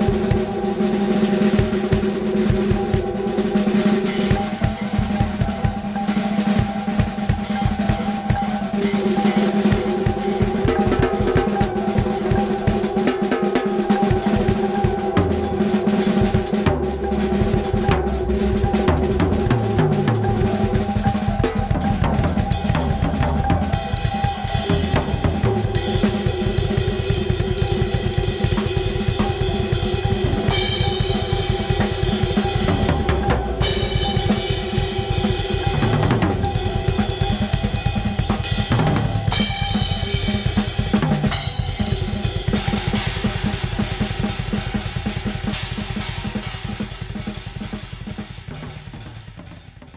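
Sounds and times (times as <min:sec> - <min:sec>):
drum kit playing: 0:00.0 - 0:49.9.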